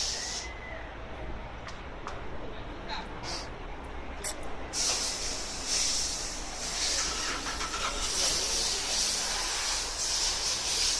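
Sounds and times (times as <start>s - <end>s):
loud hiss: 0.0s - 0.5s, 4.7s - 10.9s.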